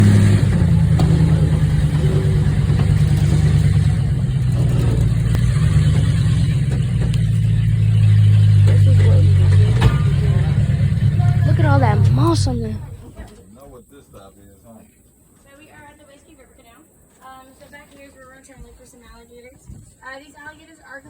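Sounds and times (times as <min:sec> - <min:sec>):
truck engine droning: 0:00.0 - 0:13.3
faint voices: 0:08.5 - 0:13.5.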